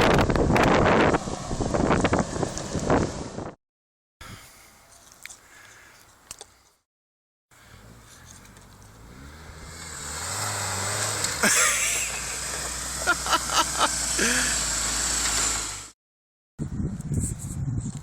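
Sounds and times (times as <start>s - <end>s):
suv engine running: 7.6s - 15.9s.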